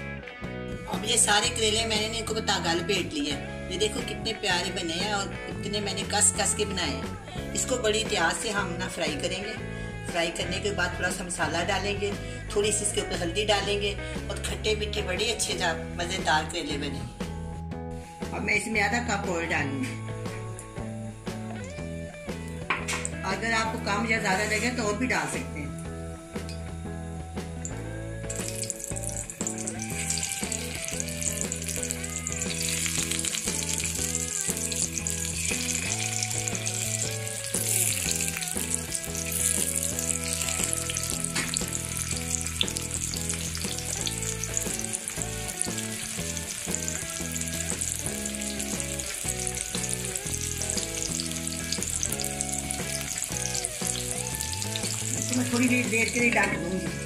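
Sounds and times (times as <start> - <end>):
background music with held notes: 0.0 - 57.0
vegetables sizzling in oil: 27.6 - 57.0.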